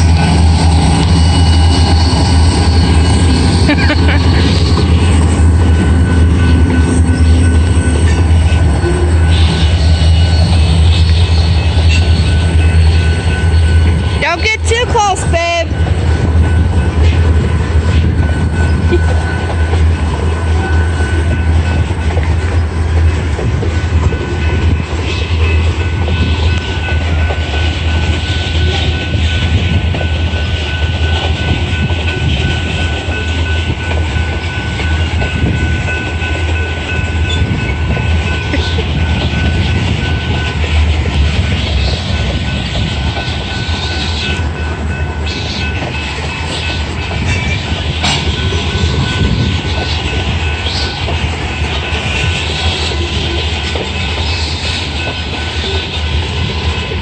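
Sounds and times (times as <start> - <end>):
high whine: 0.0 - 14.3, 15.3 - 57.0
train rumbling on rails: 0.0 - 57.0.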